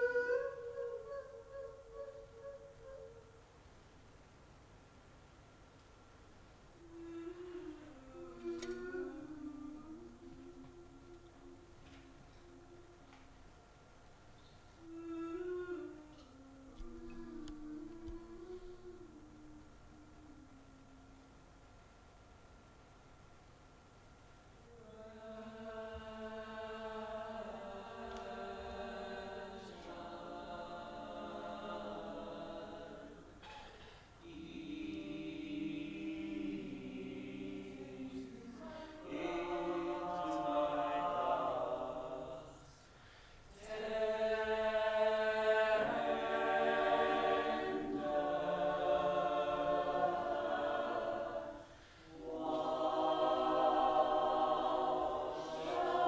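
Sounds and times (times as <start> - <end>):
choir singing held chords: 0.0 - 3.2, 24.7 - 56.0
singers breathing: 38.6 - 39.1, 42.8 - 43.6, 51.6 - 52.2.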